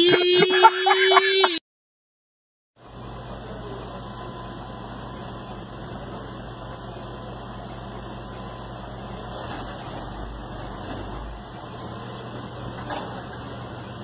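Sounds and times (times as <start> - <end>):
car engine idling: 6.0 - 14.0.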